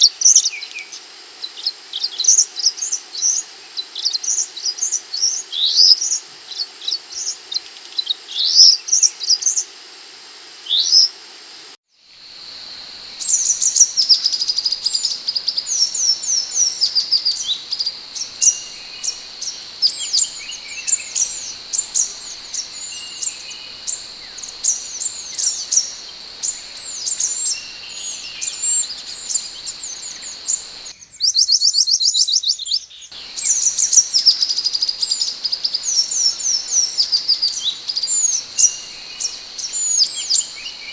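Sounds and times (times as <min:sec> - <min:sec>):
bird chirping and whistling: 0:13.2 - 0:30.9, 0:33.2 - 0:40.9.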